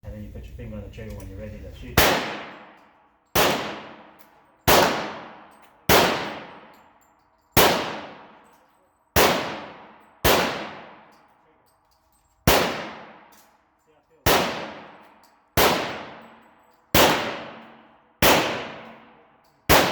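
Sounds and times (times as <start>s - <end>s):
submachine gun shots echoing: 2.0s - 6.7s, 7.6s - 8.4s, 9.2s - 11.2s, 12.4s - 13.4s, 14.2s - 19.9s.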